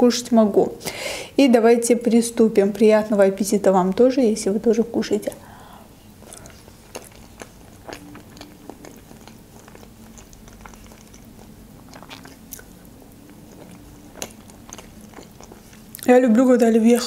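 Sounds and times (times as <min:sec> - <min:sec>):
faint steady hum: 0:00.0 - 0:17.0
close chewing with mouth clicks: 0:06.2 - 0:16.2.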